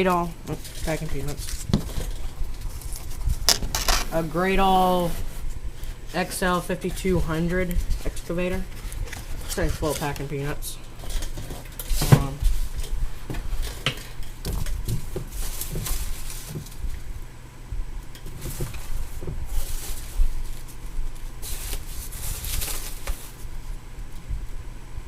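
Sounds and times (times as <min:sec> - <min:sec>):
hands rustling packing peanuts: 0:14.6 - 0:17.1, 0:18.3 - 0:23.7.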